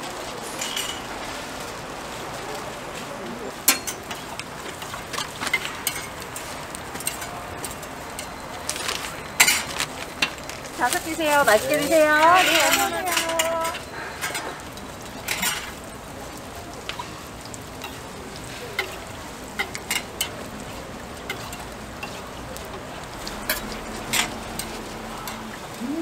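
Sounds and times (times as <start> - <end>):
pancakes sizzling on griddle: 0.0 - 26.0
metal spatula scraping griddle: 10.9 - 15.8, 21.2 - 25.6.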